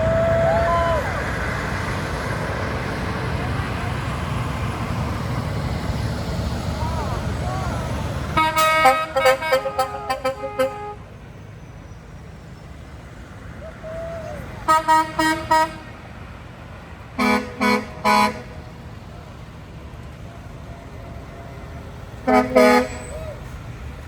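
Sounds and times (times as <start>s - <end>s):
low engine rumble: 0.0s - 24.0s
truck air horn blasts: 8.3s - 11.1s, 14.6s - 16.0s, 17.2s - 18.8s, 21.5s - 23.5s.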